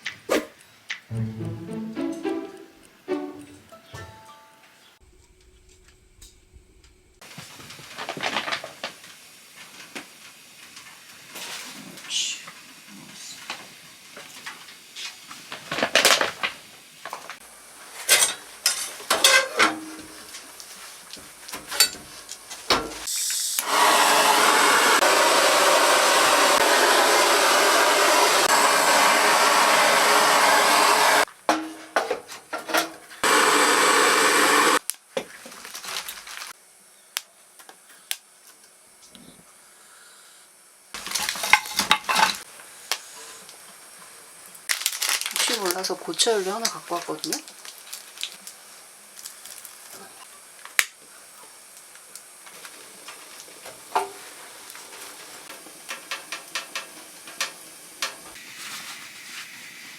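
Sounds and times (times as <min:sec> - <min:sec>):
dishes clinking and clattering: 0:18.0 - 0:20.2, 0:21.6 - 0:23.0, 0:41.2 - 0:42.4.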